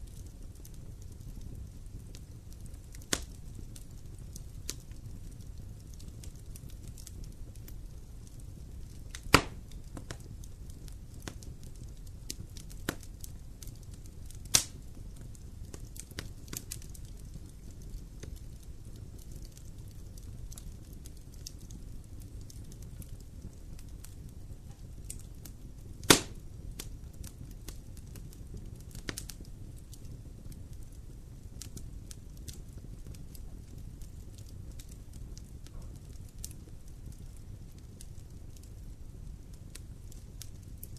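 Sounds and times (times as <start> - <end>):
campfire crackling: 0.0 - 40.9
low fire rumble: 0.0 - 40.9
loud sharp pops: 9.3 - 10.1, 14.5 - 14.7, 26.0 - 26.4.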